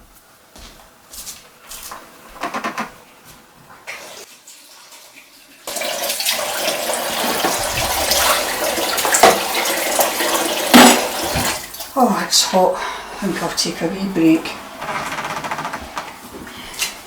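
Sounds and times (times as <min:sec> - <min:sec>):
water running from tap: 0:03.9 - 0:15.2.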